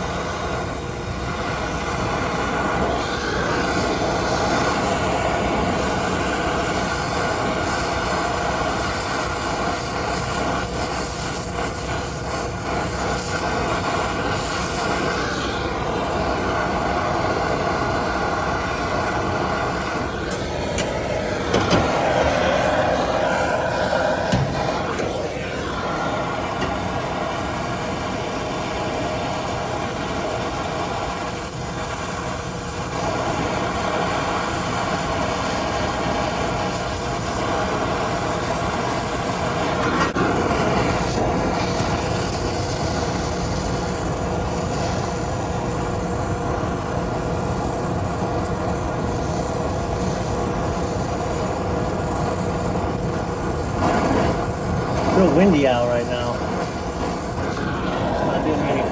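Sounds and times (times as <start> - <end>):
machine hum: 2.2 - 31.4, 52.8 - 58.9.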